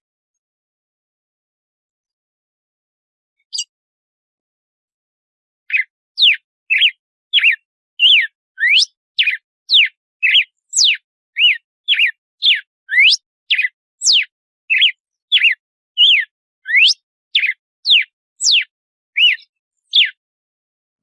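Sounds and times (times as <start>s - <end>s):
bird singing whistled notes: 3.4s - 3.7s, 5.7s - 20.2s.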